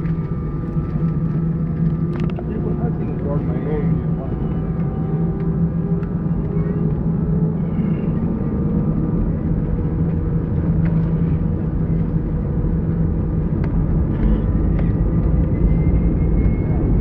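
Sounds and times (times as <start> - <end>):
airliner engines rumbling: 0.0 - 17.0.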